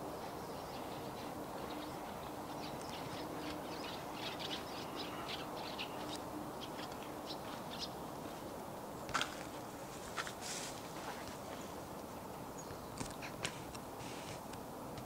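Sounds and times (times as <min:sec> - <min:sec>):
birds chirping: 0:00.0 - 0:08.6, 0:11.3 - 0:13.4
outdoor background hum: 0:00.0 - 0:15.0.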